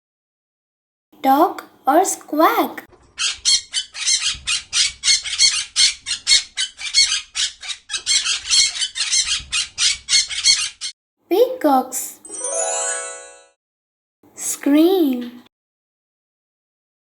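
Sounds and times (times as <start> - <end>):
parrot squawking: 3.2 - 10.9.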